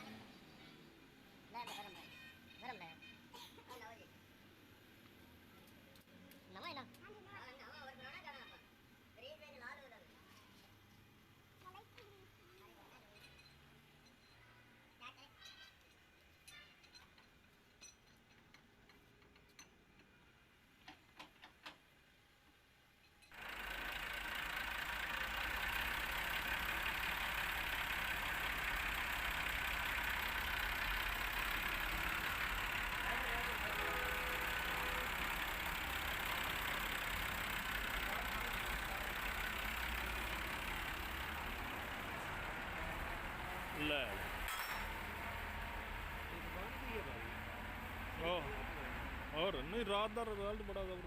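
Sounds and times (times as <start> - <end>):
tractor engine running: 23.3 - 51.0.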